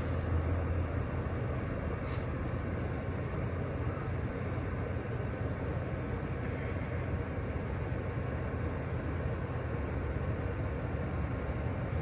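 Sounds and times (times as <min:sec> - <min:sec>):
brief high hiss: 0:02.0 - 0:02.4.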